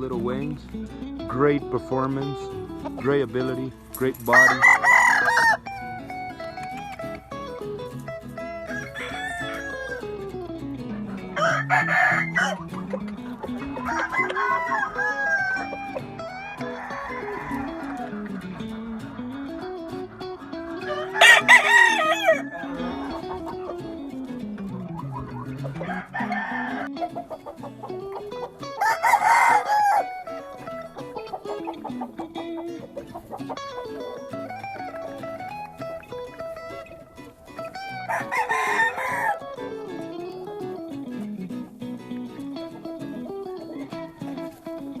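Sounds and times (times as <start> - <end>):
guitar music: 0.0 - 45.0
rooster crowing: 4.4 - 5.8, 8.6 - 10.2, 11.4 - 12.6, 13.7 - 18.2, 20.7 - 23.2, 25.7 - 27.0, 28.8 - 30.4, 37.7 - 39.6.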